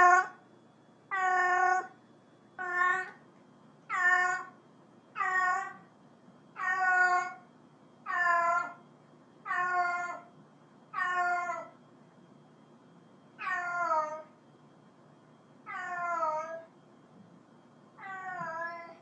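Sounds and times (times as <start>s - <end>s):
cat meowing: 1.1s - 2.0s, 2.6s - 3.2s, 3.9s - 4.5s, 5.2s - 5.8s, 6.6s - 7.4s, 9.5s - 10.3s, 11.0s - 11.7s, 13.4s - 14.3s, 15.7s - 16.7s, 18.0s - 19.0s.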